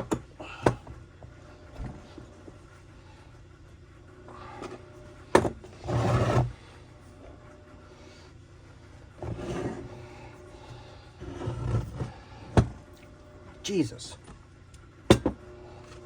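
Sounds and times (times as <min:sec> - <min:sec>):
parts scraping and rubbing: 0:04.3 - 0:07.6, 0:09.2 - 0:12.4.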